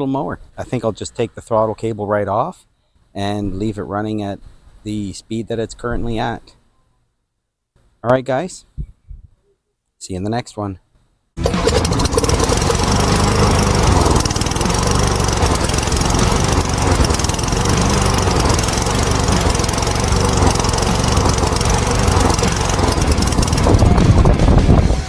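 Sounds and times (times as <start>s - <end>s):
lawnmower engine running: 11.4s - 25.0s.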